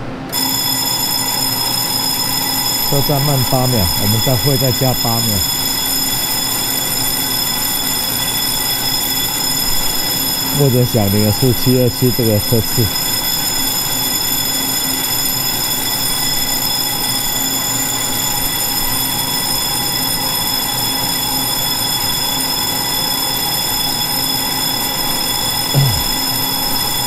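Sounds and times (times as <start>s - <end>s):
train equipment humming and whining: 0.0s - 27.0s.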